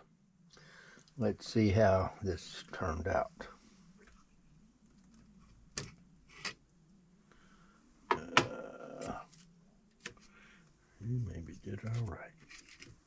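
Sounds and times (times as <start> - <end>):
rustling: 9.0 - 13.0.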